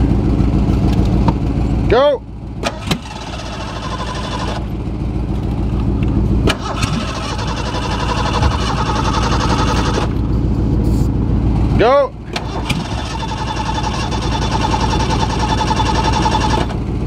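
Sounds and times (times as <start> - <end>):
truck engine cranking: 2.6 - 10.4, 12.2 - 16.9.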